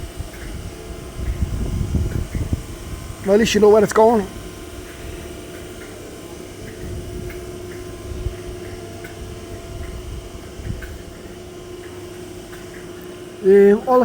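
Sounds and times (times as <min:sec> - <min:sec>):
electric train humming: 0:00.0 - 0:14.0
faint irregular ticks: 0:03.3 - 0:14.0.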